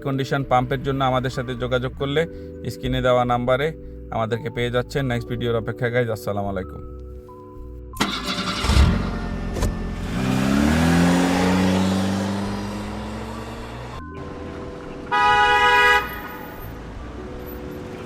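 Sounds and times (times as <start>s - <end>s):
vehicle engine: 8.0s - 18.0s
car horn toot: 15.1s - 16.4s.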